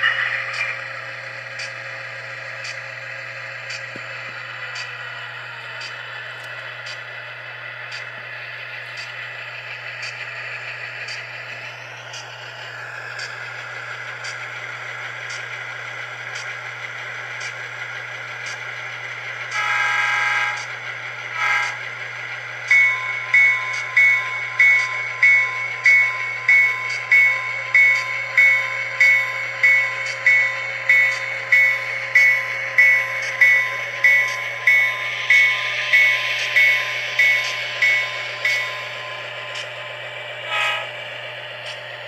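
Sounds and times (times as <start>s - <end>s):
locomotive bell ringing: 0.0s - 1.3s, 22.6s - 41.0s
model locomotive horn: 19.5s - 20.7s, 21.3s - 21.9s, 40.4s - 41.0s.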